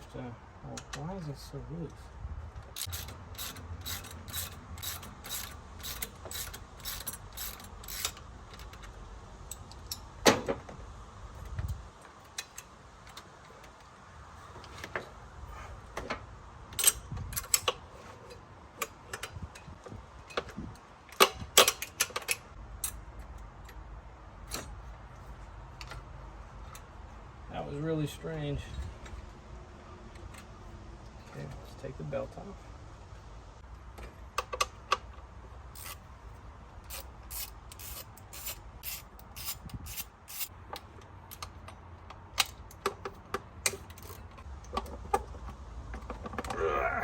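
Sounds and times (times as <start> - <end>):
ratchet wrench clicking: 2.8 - 10.0, 35.7 - 36.1, 36.9 - 40.5.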